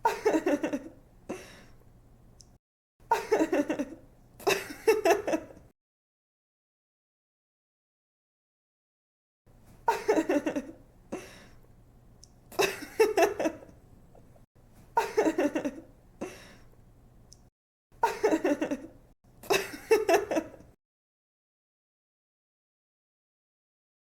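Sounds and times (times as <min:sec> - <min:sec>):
woman giggling: 0:00.0 - 0:01.0, 0:03.1 - 0:05.6, 0:09.9 - 0:10.8, 0:12.5 - 0:13.7, 0:15.0 - 0:15.9, 0:18.0 - 0:20.7.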